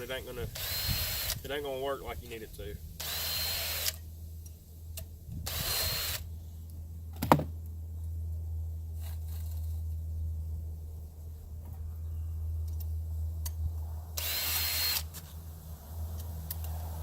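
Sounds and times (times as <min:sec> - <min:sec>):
drill motor hum: 0:00.6 - 0:01.4, 0:03.0 - 0:04.0, 0:05.4 - 0:06.2, 0:14.2 - 0:15.1.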